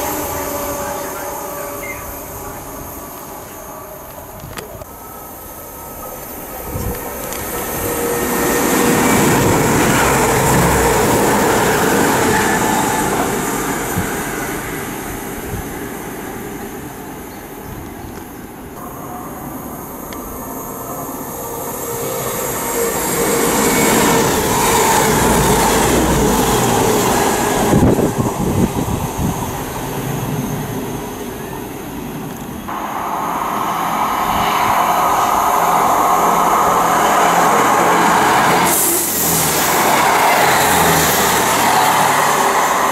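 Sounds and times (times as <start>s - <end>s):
wheels rumbling on rails: 0.0s - 15.7s, 18.1s - 42.9s
diesel train engine drone: 0.0s - 42.9s.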